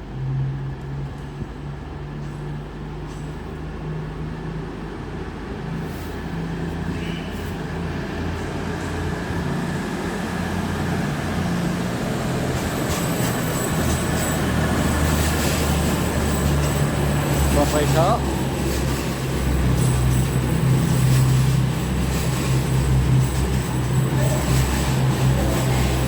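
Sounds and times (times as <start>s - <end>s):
train diesel engines running: 0.0s - 26.0s.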